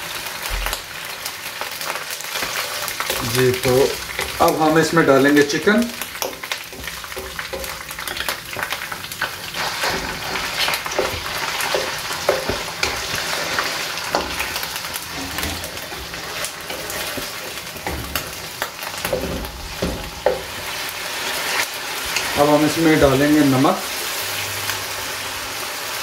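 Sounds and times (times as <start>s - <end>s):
chicken sizzling in hot oil: 0.0s - 26.0s
wooden spatula scraping a pan: 2.3s - 21.6s.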